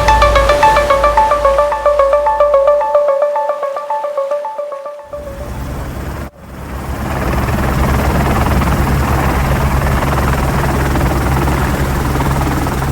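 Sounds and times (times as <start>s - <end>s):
helicopter rotor and engine drone: 5.2s - 12.9s.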